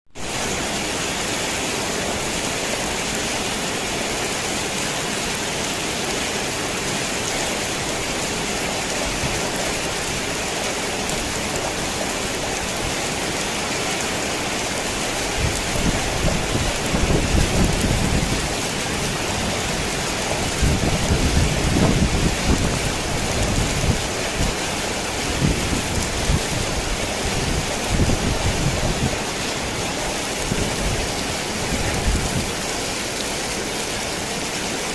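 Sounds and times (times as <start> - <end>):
heavy rain on a tin roof: 0.1 - 34.9
thunder rumbling: 15.3 - 33.0.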